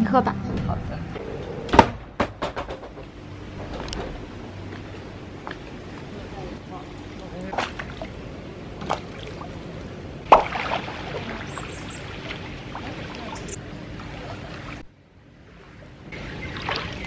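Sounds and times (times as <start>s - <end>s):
rushing water: 5.6s - 17.0s.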